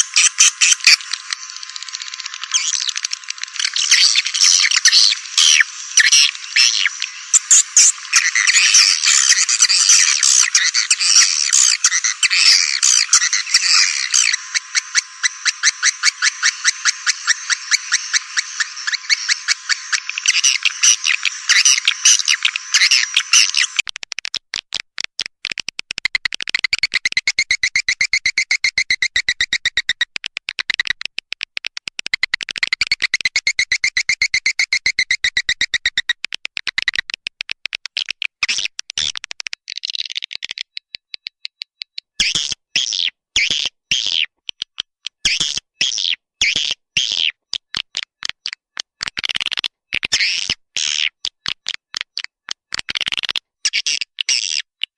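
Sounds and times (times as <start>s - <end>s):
rapid clicking with ringing tone: 0.0s - 23.8s
swiftlet chirps: 0.0s - 23.8s.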